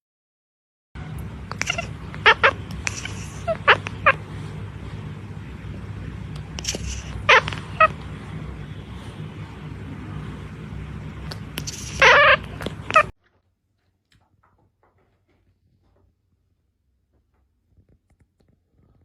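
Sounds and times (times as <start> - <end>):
steady low hum: 1.0 - 13.2
pet's high-pitched calls: 1.5 - 4.2, 6.6 - 8.0, 11.6 - 13.1.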